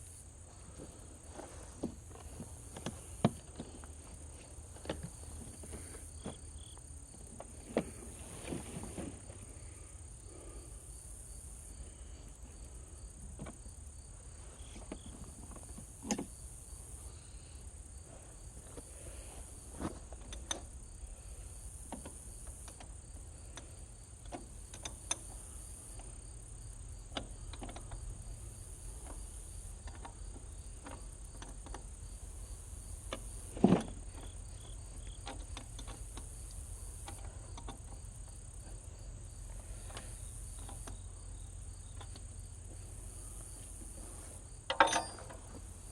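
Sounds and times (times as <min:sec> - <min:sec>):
insects chirping: 0:00.0 - 0:45.9
hand tools clicking and knocking: 0:44.7 - 0:45.7.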